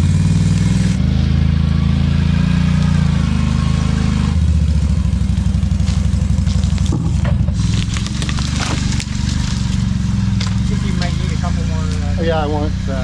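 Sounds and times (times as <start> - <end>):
small vehicle engine running: 0.0 - 13.0
knocks and clanks: 6.9 - 12.1.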